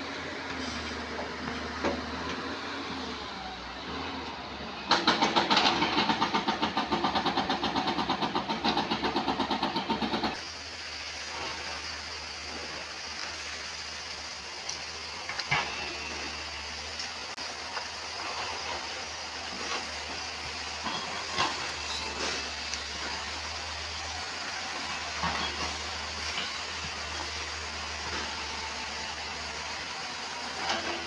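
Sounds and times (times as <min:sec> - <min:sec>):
excavator engine running: 0:00.0 - 0:31.0
hydraulic breaker hammering stone: 0:04.9 - 0:10.4.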